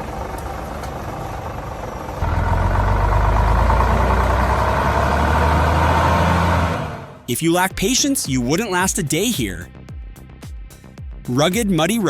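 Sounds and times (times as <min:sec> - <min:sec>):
heavy truck engine running: 0:00.0 - 0:07.3.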